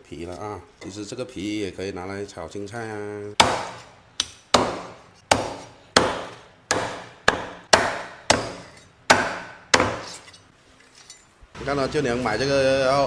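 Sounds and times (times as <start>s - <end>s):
cleaver chopping on wooden board: 3.4s - 10.2s.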